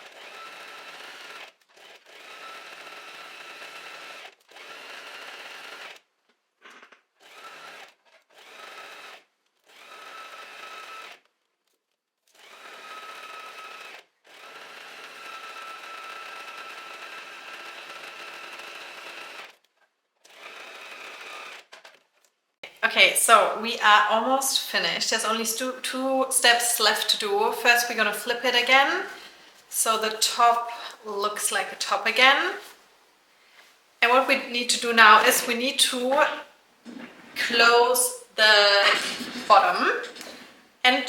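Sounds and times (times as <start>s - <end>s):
sewing machine stitching: 0.0s - 6.0s.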